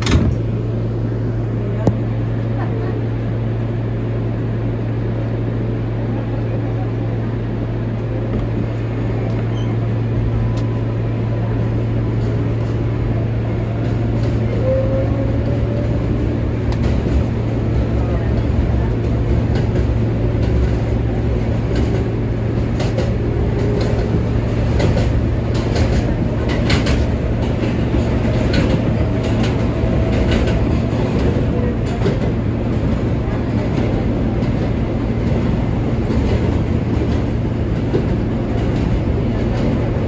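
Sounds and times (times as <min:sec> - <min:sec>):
subway train hum and rumble: 0:00.0 - 0:40.0
wheels clicking over rail joints: 0:21.6 - 0:33.0.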